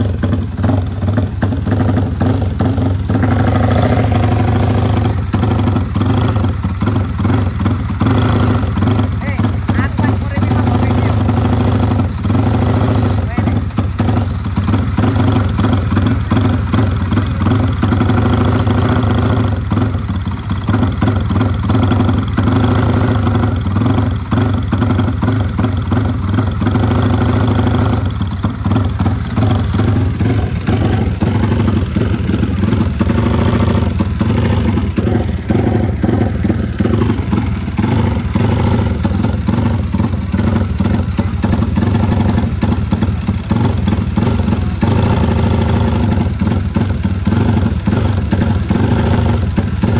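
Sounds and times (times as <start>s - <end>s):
motorcycle engine running loudly: 0.0s - 49.9s.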